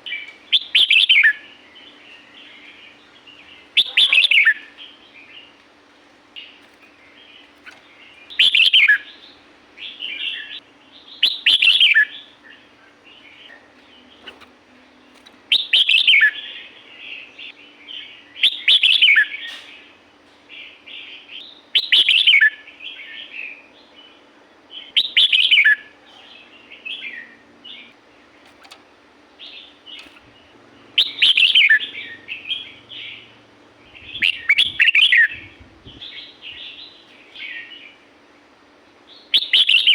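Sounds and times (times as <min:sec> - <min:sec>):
bird chattering notes: 0:03.5 - 0:04.8
bird singing whistled phrases: 0:03.8 - 0:04.7, 0:08.3 - 0:09.1, 0:11.2 - 0:12.2, 0:21.8 - 0:22.6, 0:31.0 - 0:33.2, 0:34.0 - 0:35.4, 0:39.2 - 0:39.9.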